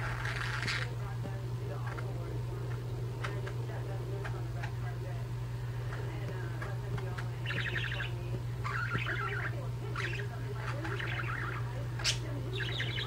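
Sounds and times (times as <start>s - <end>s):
steady low hum: 0.0s - 13.0s
budgerigars chirping: 7.4s - 13.0s.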